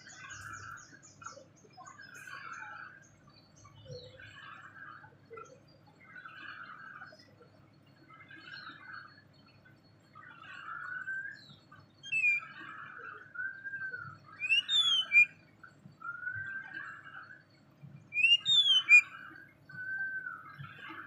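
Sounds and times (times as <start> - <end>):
songbird whistling and chattering: 10.8 - 15.4, 16.0 - 16.8, 18.1 - 20.6
sharp falling bird whistles: 14.4 - 15.3, 18.2 - 19.2.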